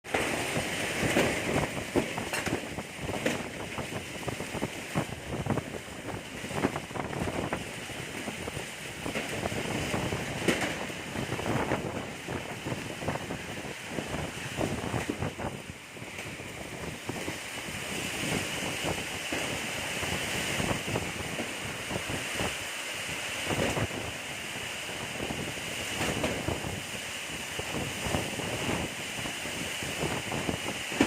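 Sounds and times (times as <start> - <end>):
tent flapping and knocking: 0.1 - 22.6, 25.2 - 26.8
strong wind gusting: 0.1 - 31.0.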